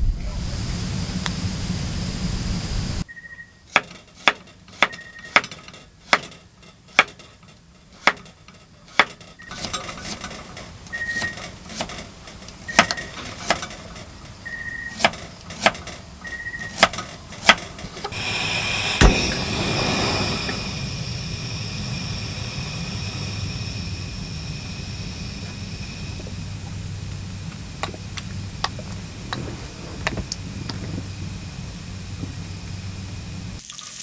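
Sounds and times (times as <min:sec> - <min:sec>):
steady rushing noise: 0:00.0 - 0:03.0, 0:18.1 - 0:33.6
brief ringing tone: 0:03.1 - 0:03.6.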